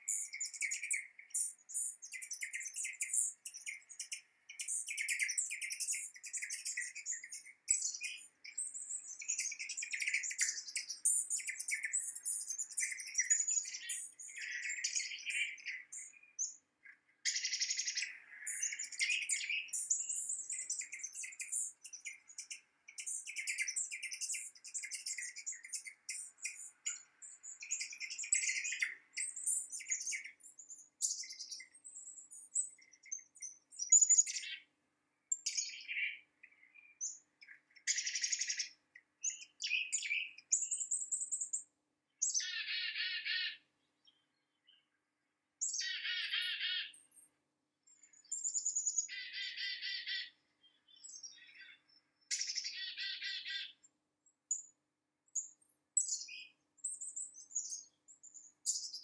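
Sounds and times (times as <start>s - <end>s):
high bird chirps: 0.0s - 34.7s, 35.3s - 44.9s, 45.6s - 47.3s, 48.0s - 53.9s, 55.4s - 59.0s
buzzy bird trill: 17.2s - 30.4s, 45.6s - 47.0s, 48.4s - 50.4s, 52.3s - 53.8s.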